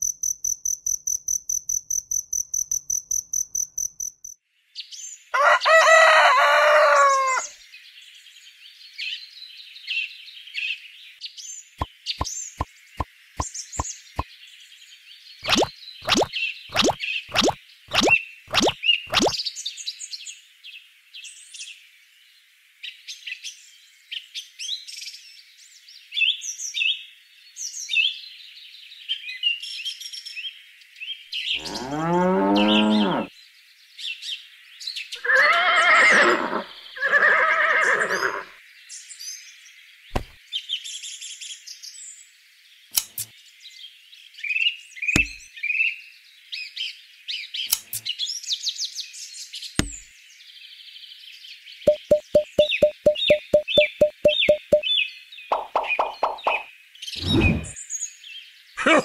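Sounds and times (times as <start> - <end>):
birds chirping: 15.4 - 19.4, 51.9 - 57.8
cow mooing: 31.6 - 33.3
sharp clicks: 43.0 - 43.3, 47.7 - 48.1, 51.9 - 54.8.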